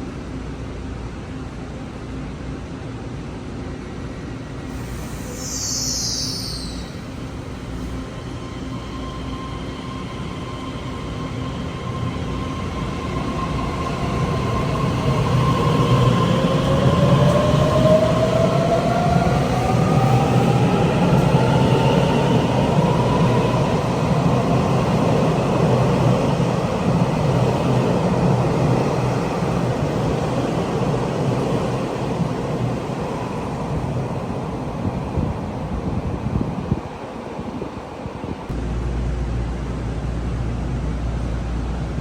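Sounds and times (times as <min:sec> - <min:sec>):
rising whine: 0:05.0 - 0:07.8.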